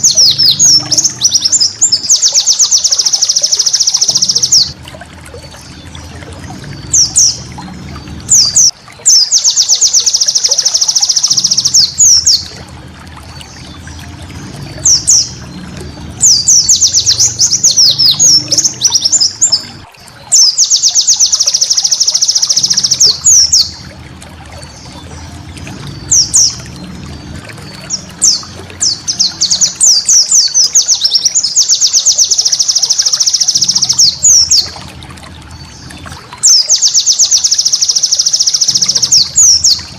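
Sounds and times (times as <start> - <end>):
bird rapid trilled song: 0.0 - 4.8, 8.3 - 12.6, 14.8 - 23.8, 25.9 - 26.6, 27.6 - 34.8, 35.6 - 39.9
low hum: 4.0 - 9.4, 10.6 - 20.6, 22.4 - 31.6.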